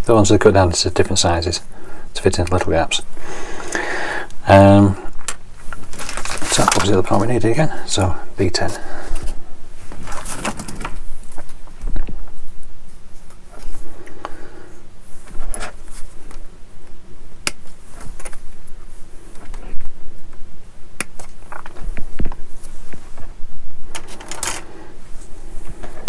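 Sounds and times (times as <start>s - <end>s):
light scraping and rustling: 5.6s - 7.8s.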